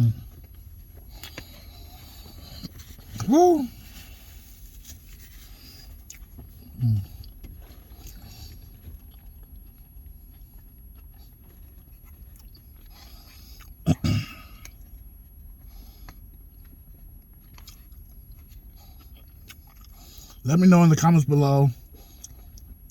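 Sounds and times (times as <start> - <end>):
quiet eating sounds: 0.0 - 22.9
steady low hum: 0.0 - 22.9
person humming mm: 3.2 - 3.8, 6.8 - 7.1
quick voiced sounds: 3.2 - 3.8.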